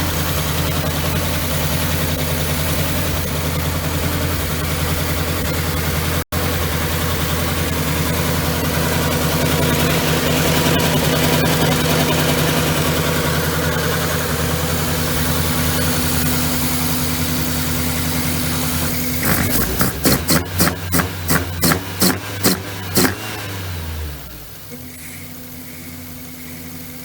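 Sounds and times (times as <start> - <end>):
car engine idling: 0.0 - 27.0
sharp throttle blips: 7.4 - 27.0.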